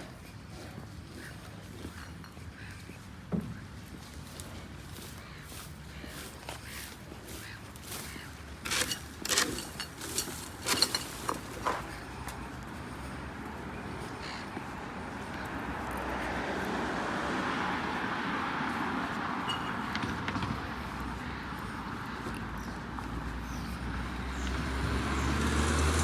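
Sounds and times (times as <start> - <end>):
passing road vehicle: 6.8 - 26.0.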